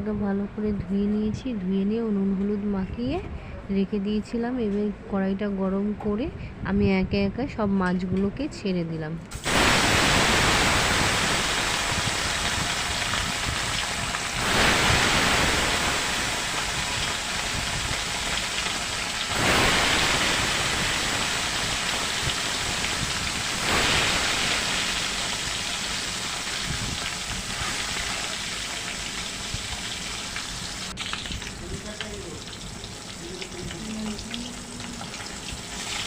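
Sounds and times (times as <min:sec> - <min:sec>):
fish frying in hot oil: 0:09.4 - 0:36.0.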